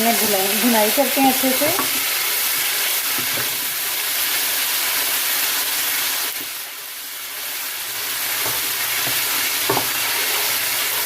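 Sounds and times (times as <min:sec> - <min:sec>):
paste frying in hot oil: 0:00.0 - 0:11.0.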